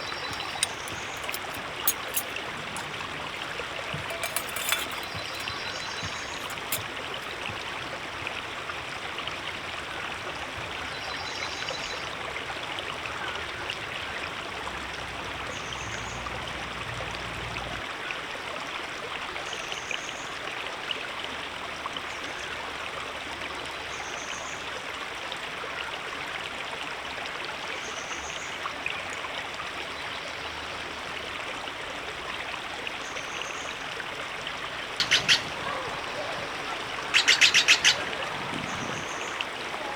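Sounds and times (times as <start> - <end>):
river flowing over rocks: 0.0 - 9.0.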